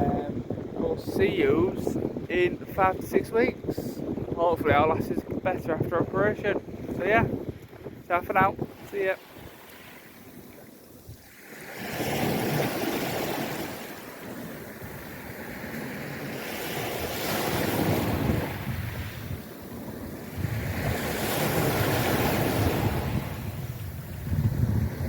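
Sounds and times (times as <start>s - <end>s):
wind buffeting microphone: 0.0s - 25.0s
waves washing onto shore: 6.5s - 25.0s.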